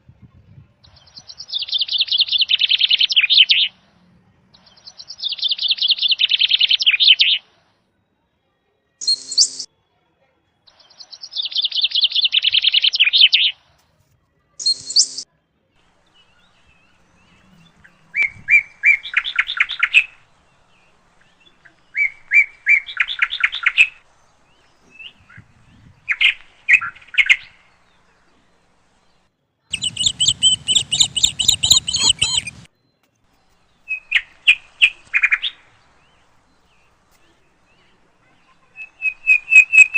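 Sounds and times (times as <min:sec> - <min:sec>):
bird chirping high notes: 0:09.0 - 0:09.7, 0:14.6 - 0:15.2, 0:29.7 - 0:32.7
short sharp bird calls: 0:14.6 - 0:28.7, 0:29.7 - 0:32.7, 0:33.3 - 0:39.9.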